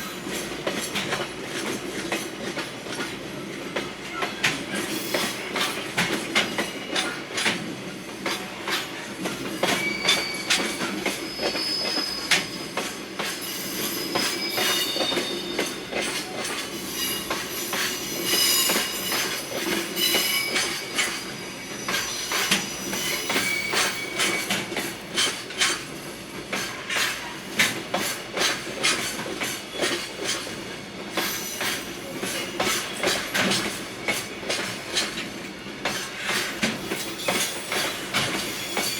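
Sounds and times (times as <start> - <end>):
train rumbling: 0.0 - 38.9
steel wheel squeal: 9.6 - 25.8, 31.2 - 34.3, 36.3 - 38.9.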